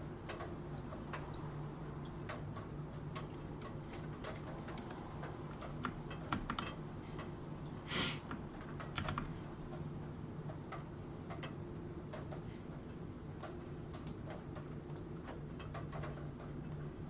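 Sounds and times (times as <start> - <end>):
keyboard typing: 5.6 - 6.8, 8.7 - 9.4.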